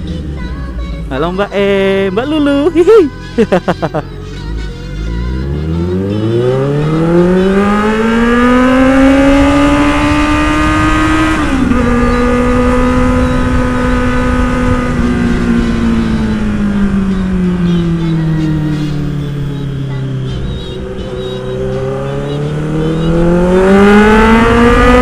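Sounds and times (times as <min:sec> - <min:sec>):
motorcycle engine accelerating: 0:05.2 - 0:25.0.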